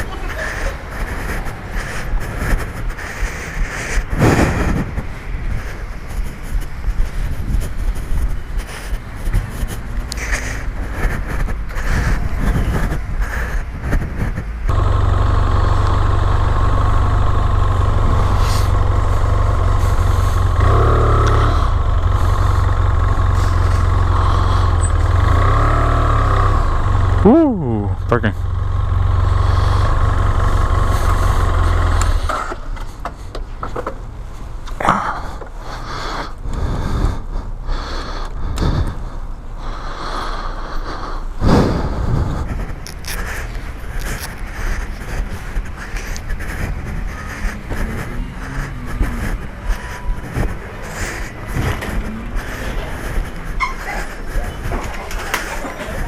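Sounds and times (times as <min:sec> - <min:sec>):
steady rushing noise: 0:00.0 - 0:24.8, 0:40.8 - 0:56.0
motorcycle engine running: 0:13.8 - 0:32.4, 0:41.7 - 0:56.0.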